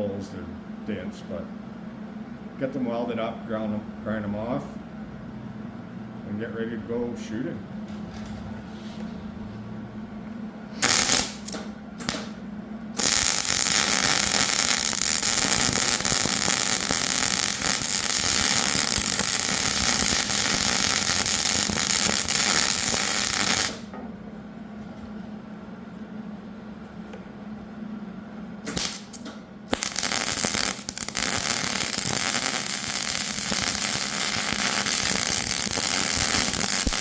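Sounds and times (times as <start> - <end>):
arc welding crackle: 10.7 - 23.9, 28.6 - 37.0.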